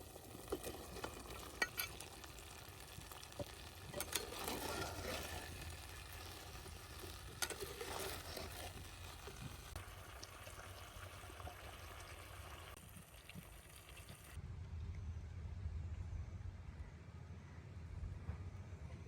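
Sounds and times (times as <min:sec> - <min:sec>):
chicken wings sizzling: 0:00.0 - 0:14.4.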